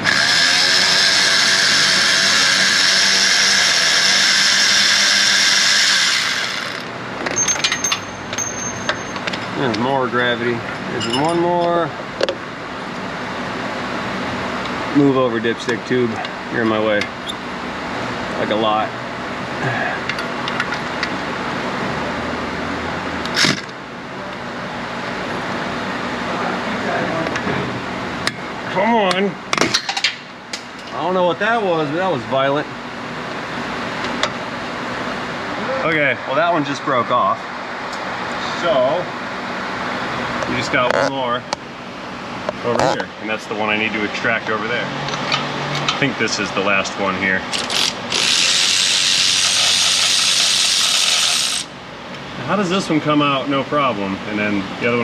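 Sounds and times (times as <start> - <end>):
power tool spinning bolt: 0.0 - 6.9, 47.5 - 51.7
steady background hum: 0.0 - 55.0.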